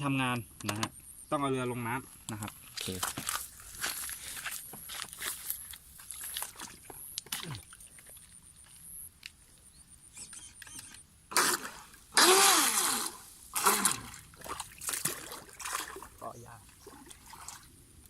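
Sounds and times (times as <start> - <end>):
water splashing: 6.0 - 8.4, 11.3 - 17.8.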